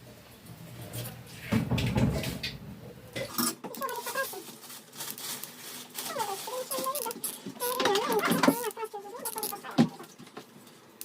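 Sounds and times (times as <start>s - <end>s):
short squeaks: 6.1s - 10.2s.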